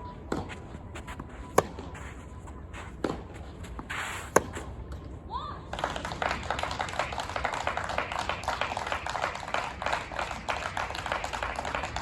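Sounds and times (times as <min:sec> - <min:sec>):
spectators applauding: 0:05.7 - 0:12.0.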